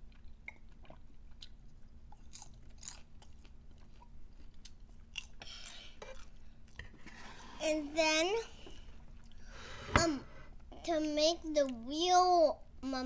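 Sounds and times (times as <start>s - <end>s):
chewing: 0.0s - 7.2s.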